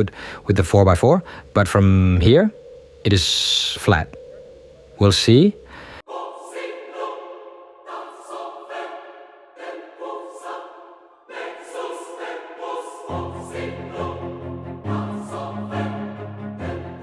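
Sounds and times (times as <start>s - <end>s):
melodic background music: 13.1s - 17.0s.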